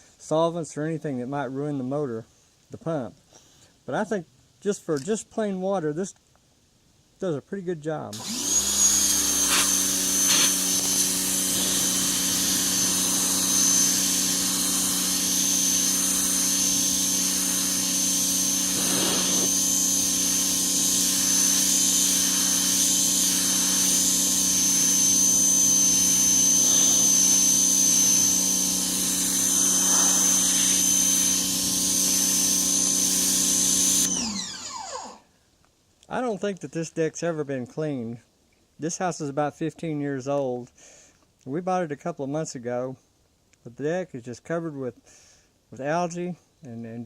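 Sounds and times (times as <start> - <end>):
water jet hissing on wood: 8.2 - 25.1
pressure washer motor hum: 8.2 - 35.2.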